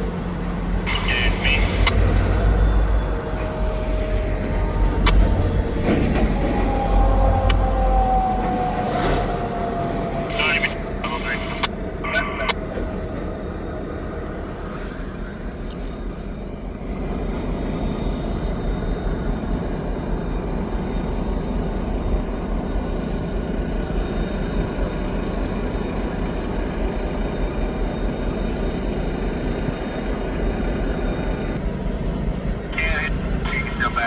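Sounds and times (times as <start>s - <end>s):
vehicle rumble: 0.7s - 13.2s.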